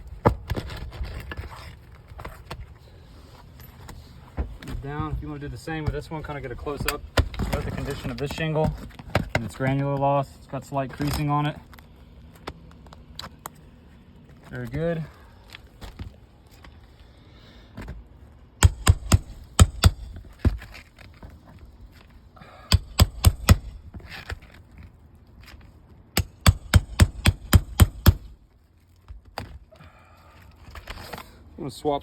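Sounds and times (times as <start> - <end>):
sharp blows on nail-removal tool: 22.7 - 23.8, 26.2 - 28.3.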